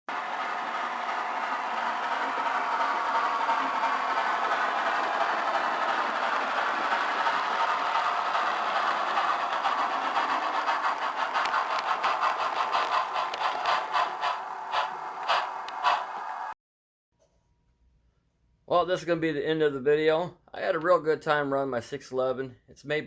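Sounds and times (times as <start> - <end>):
model steam locomotive hiss: 0.1 - 16.5
steam locomotive chuffing: 0.1 - 16.6.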